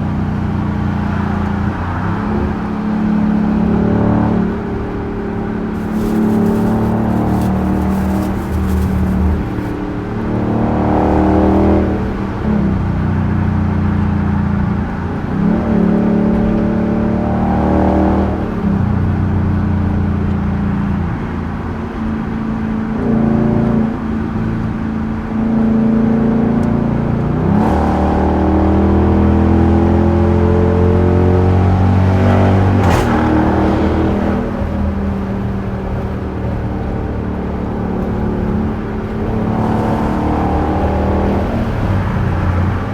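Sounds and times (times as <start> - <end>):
engine revving through gears: 27.4 - 42.9.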